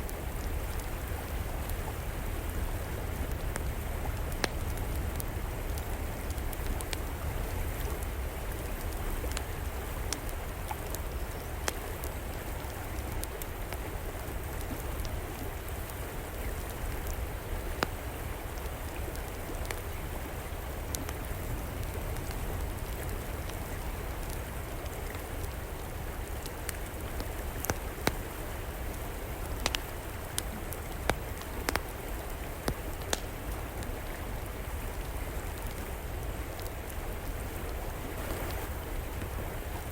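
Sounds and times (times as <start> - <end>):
river flowing: 0.0 - 39.9
wood fire crackling and popping: 26.4 - 34.6.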